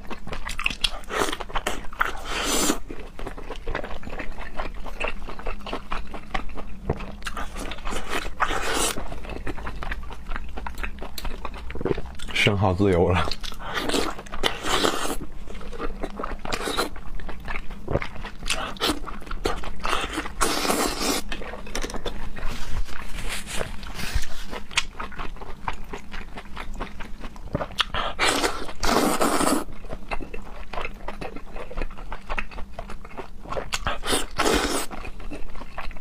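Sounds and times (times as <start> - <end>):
wet chewing: 0.0 - 36.0
slurping: 17.9 - 24.8, 33.9 - 35.0.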